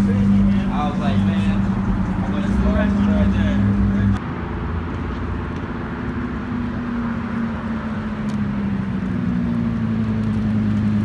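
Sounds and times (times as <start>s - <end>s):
car engine running: 0.0s - 4.2s.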